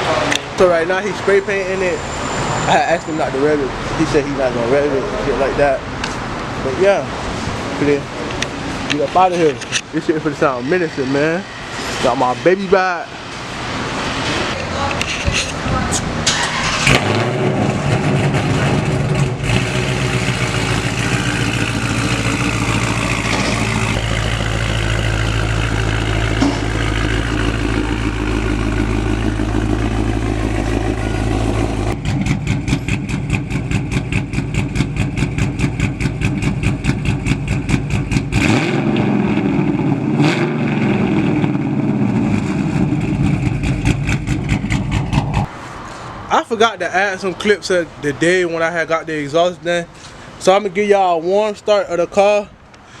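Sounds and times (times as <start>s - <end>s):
car engine exhaust drone: 15.9s - 46.3s
pulsing exhaust note: 16.8s - 45.4s.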